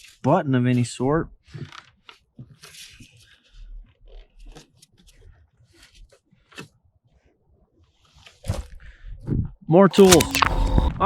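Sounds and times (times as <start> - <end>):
handling clicks and scrapes: 9.9 - 11.0.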